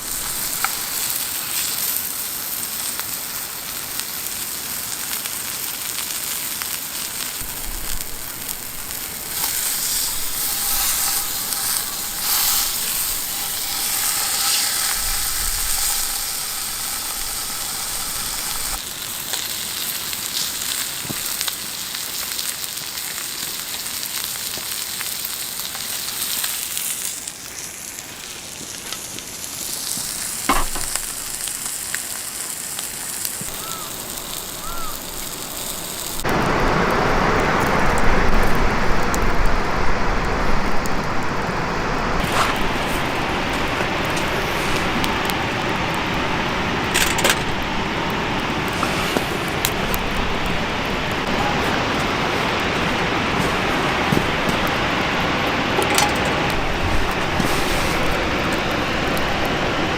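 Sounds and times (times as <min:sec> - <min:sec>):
food sizzling in a pan: 0:00.0 - 0:36.7, 0:48.1 - 0:55.7.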